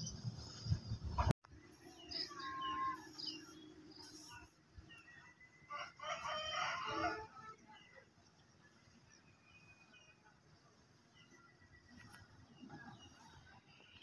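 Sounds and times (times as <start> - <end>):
small birds chirping: 1.6 - 5.6.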